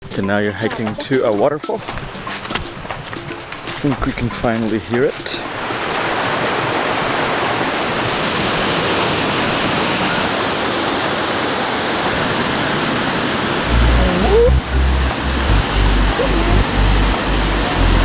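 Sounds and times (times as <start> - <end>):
waterfall roaring: 5.1 - 18.0
deep low rumble: 13.7 - 18.0.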